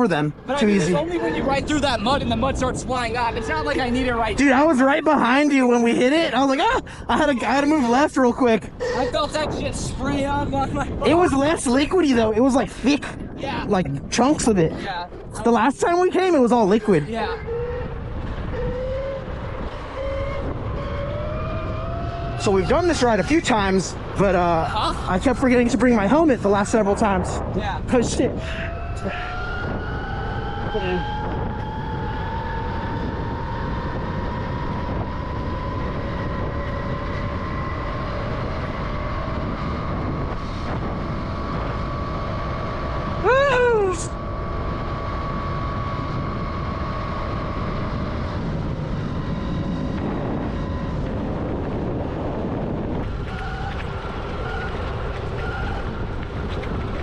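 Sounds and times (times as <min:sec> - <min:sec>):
wind and tyre rumble: 0:00.0 - 0:57.0
electric motor whine: 0:16.3 - 0:26.8, 0:28.4 - 0:57.0.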